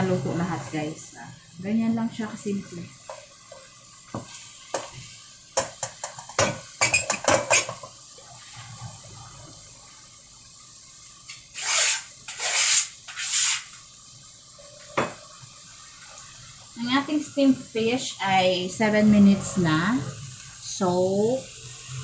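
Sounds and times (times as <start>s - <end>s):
dishes and utensils clinking: 5.6s - 7.9s.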